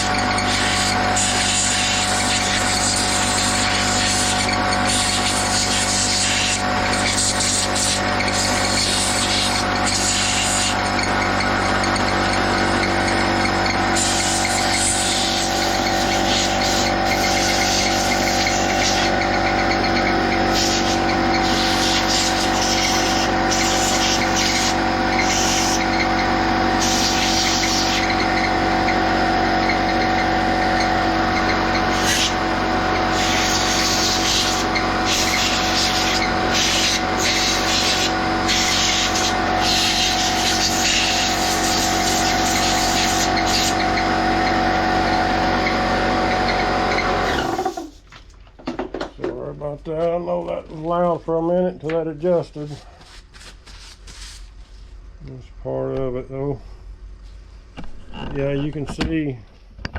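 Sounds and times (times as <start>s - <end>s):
blow gun hissing air blasts: 0.0s - 10.9s, 13.9s - 19.2s, 20.4s - 26.0s, 26.7s - 28.4s, 31.7s - 43.8s
air compressor humming: 0.0s - 49.5s.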